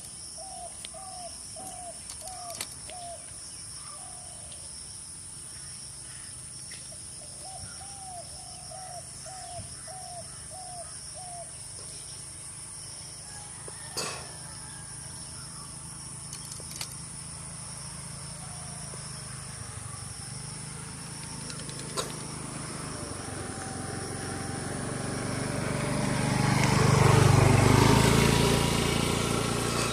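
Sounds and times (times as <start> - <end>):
vehicle engine approaching: 14.3 - 29.9.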